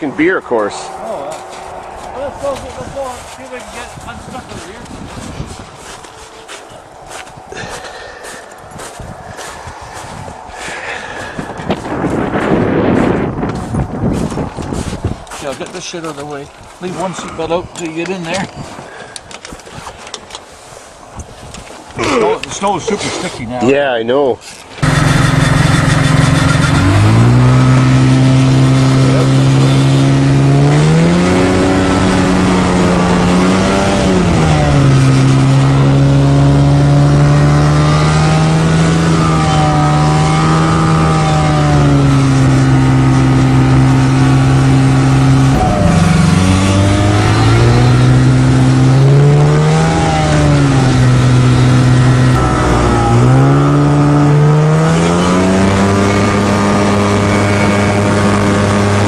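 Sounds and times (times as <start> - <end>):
engine revving under load: 24.8 - 59.0.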